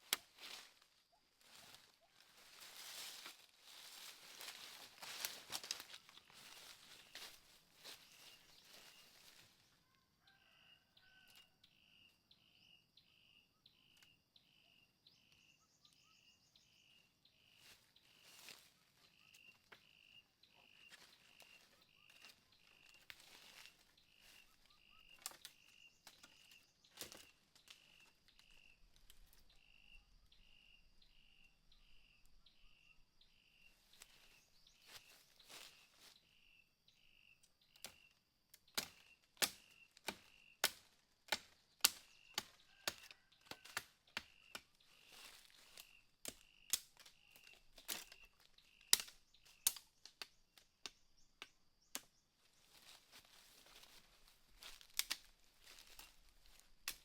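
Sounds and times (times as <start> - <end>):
rustles and cracks: 0.0 - 9.4, 38.6 - 57.0
high insect hum: 0.0 - 43.7
insect chirping: 0.0 - 57.0.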